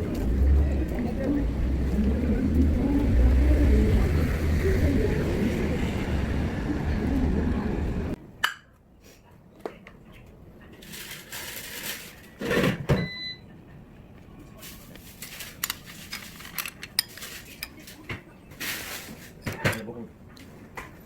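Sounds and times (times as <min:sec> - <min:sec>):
low rumble: 0:00.0 - 0:08.2
high beep: 0:13.0 - 0:13.4.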